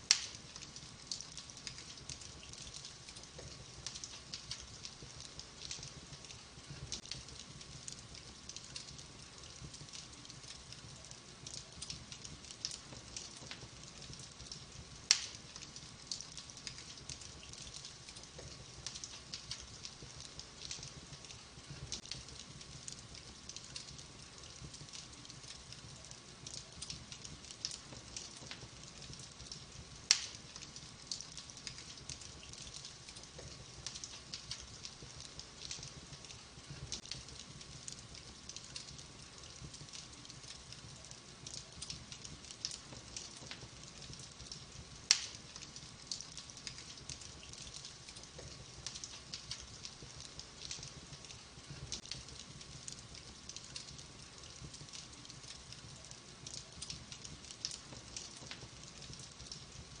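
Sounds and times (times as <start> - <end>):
wood fire crackling: 0.0 - 60.0.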